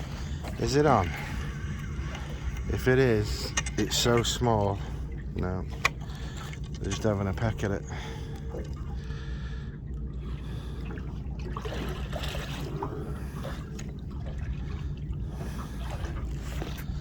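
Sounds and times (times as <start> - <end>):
small splashes: 0.0 - 17.0
steady low rumble: 0.0 - 17.0
water lapping against boat hull: 0.0 - 17.0.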